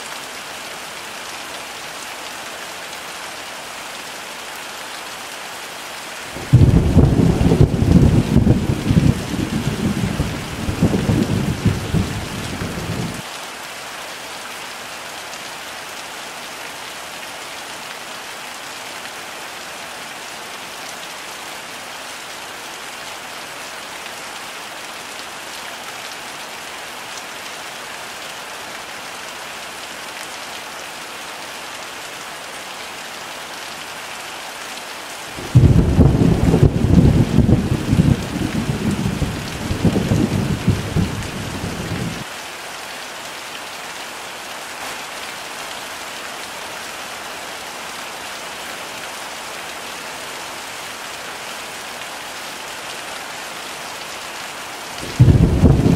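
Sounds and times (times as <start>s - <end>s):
heavy rain falling: 0.0s - 55.9s
thunder rumbling: 6.4s - 13.2s, 35.4s - 42.2s, 55.1s - 55.9s.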